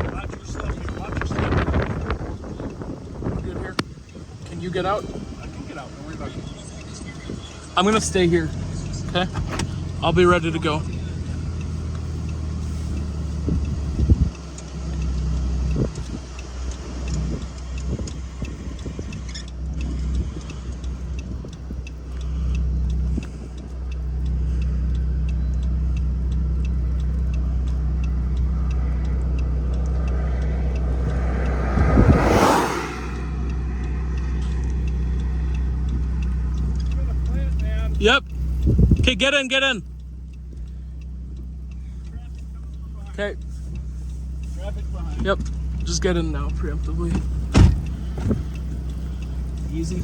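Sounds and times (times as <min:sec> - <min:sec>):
car idling rumble: 0:00.0 - 0:50.0
vehicle passing by: 0:00.0 - 0:50.0
car door shutting: 0:09.0 - 0:09.8, 0:47.1 - 0:48.5.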